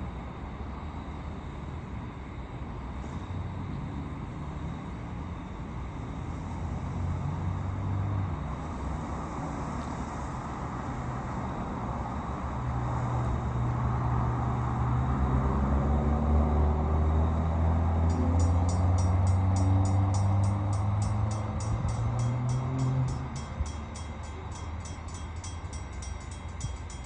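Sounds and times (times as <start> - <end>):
vehicle engine rumble: 2.6 - 27.0
quick high ringing: 18.1 - 27.0.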